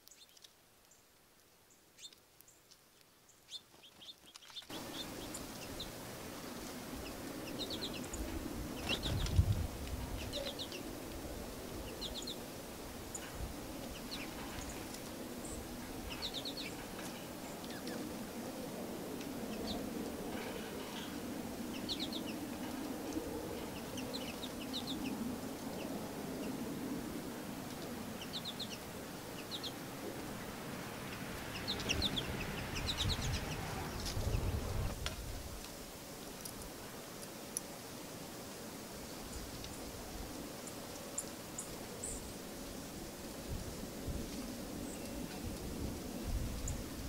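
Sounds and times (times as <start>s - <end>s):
small birds chirping: 0.0s - 18.4s, 19.2s - 26.7s, 27.5s - 35.0s, 39.0s - 43.0s
outdoor background hum: 3.5s - 47.0s.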